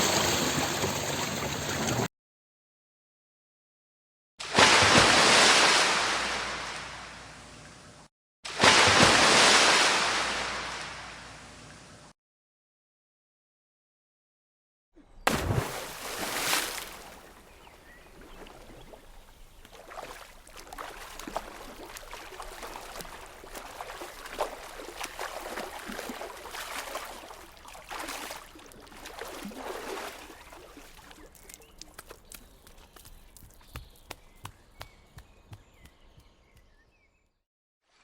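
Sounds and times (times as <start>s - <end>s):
water splashing: 0.0s - 2.1s, 4.4s - 7.1s, 8.5s - 11.2s, 15.3s - 34.2s
water dripping: 18.2s - 34.6s.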